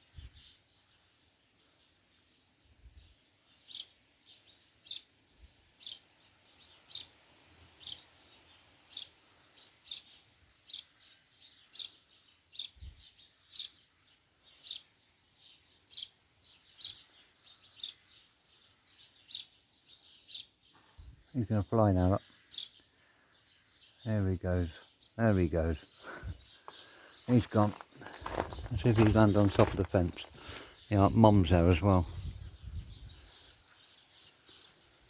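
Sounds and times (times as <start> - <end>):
fledgling bird chirping: 3.0 - 5.1, 5.8 - 35.0.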